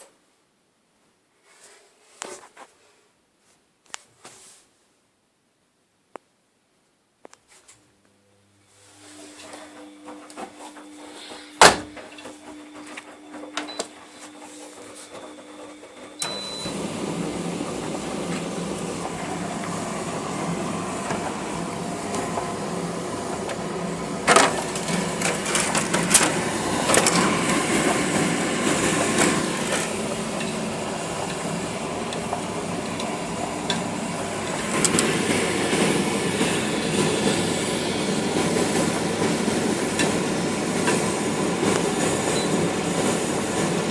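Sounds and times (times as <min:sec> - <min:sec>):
laundry machine humming: 0:08.2 - 0:43.9
laundry machine churning rumble: 0:10.9 - 0:43.9.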